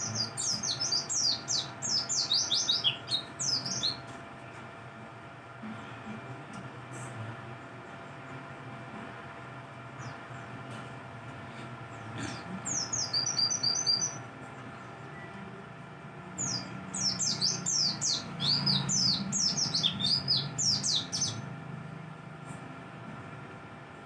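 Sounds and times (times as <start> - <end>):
bird chirping: 0.0 - 4.0, 11.9 - 15.3, 16.3 - 21.5.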